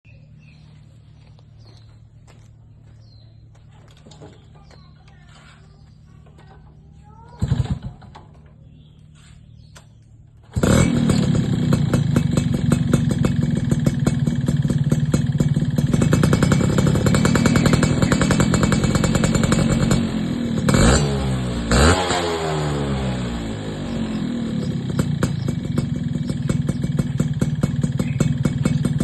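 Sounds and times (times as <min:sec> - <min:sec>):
two-stroke motorcycle engine: 0:07.3 - 0:09.2, 0:09.8 - 0:29.0.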